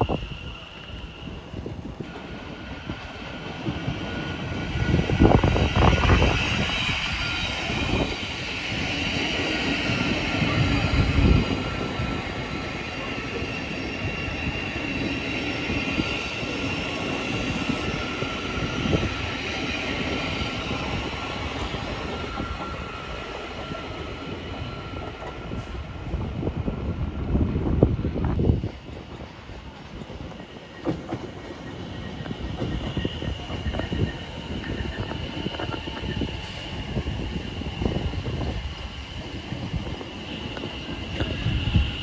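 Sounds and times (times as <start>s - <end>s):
train rumbling on track: 0.0s - 42.0s.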